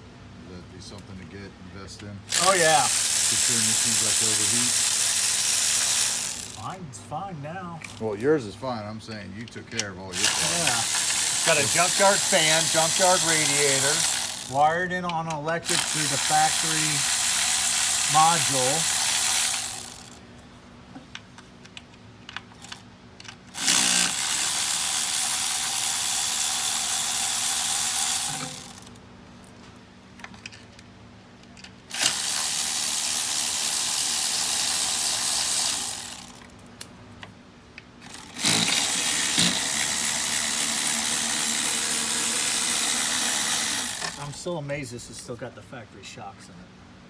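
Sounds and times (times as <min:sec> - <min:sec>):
power tool running: 0:02.3 - 0:06.8, 0:10.2 - 0:20.2, 0:23.5 - 0:29.0, 0:31.9 - 0:36.5, 0:38.0 - 0:44.6.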